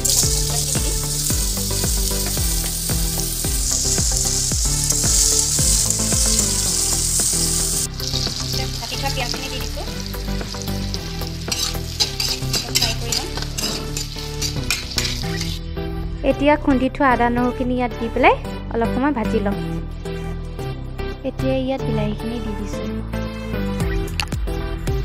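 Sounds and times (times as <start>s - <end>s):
vegetables sizzling in hot oil: 0.0s - 15.6s
metal spatula scraping pan: 10.7s - 15.6s.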